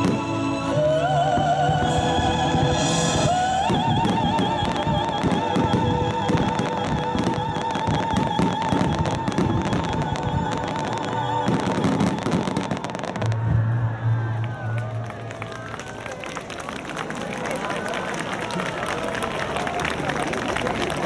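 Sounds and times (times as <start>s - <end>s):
music playing: 0.0s - 15.6s
fireworks crackling and popping: 3.7s - 13.6s.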